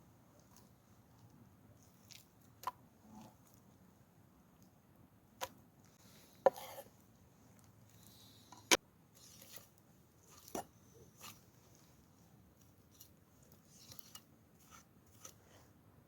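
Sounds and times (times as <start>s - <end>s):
soft scraping: 6.0s - 7.0s.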